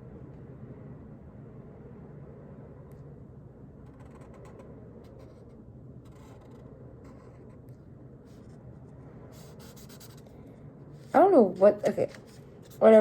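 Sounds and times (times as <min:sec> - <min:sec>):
low room hum: 0:00.0 - 0:13.0
marker drawing on paper: 0:04.0 - 0:07.7, 0:09.4 - 0:10.3, 0:11.1 - 0:13.0.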